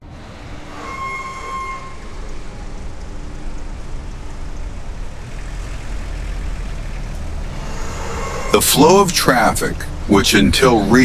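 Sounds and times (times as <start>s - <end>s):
low rumble of vehicles: 0.0s - 11.0s
high horn toot: 0.6s - 2.5s.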